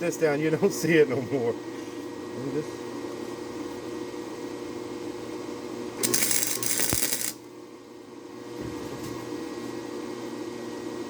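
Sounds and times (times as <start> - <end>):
electrical hum: 5.0 - 7.8
arc welder crackling sizzle: 6.0 - 7.5.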